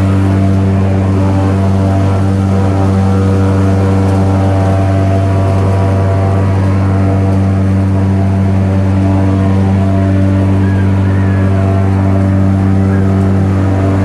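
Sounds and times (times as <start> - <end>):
airboat engine and propeller drone: 0.0 - 14.0.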